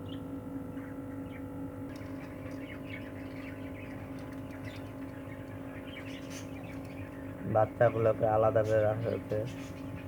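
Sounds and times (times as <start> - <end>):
electrical hum: 0.0 - 10.0
budgerigars chirping: 2.0 - 10.0.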